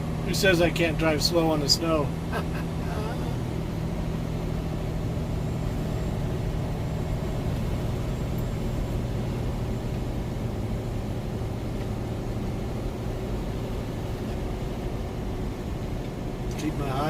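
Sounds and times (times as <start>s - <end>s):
truck diesel engine droning: 0.0s - 17.0s.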